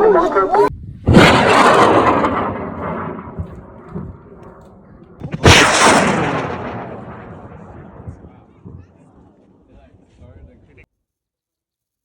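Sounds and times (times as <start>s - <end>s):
rocket motor rumble: 0.7s - 9.4s
loud boom: 0.7s - 9.5s.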